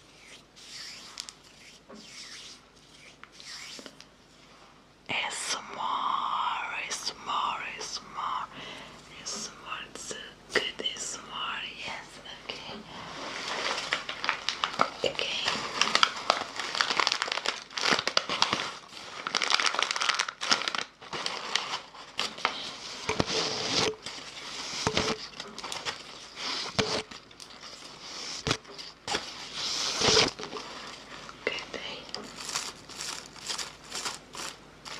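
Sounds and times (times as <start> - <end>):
packaging crinkling: 13.4 - 28.0, 32.1 - 34.9.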